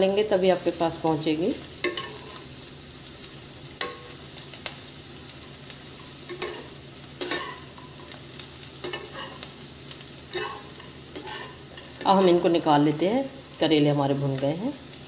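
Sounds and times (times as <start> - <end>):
vegetables sizzling in oil: 0.0 - 15.0
steel skimmer scraping pan: 10.3 - 12.5.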